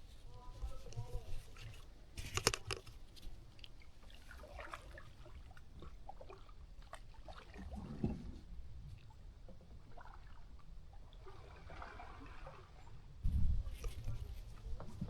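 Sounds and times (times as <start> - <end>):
paddle splashing in water: 0.0 - 8.4.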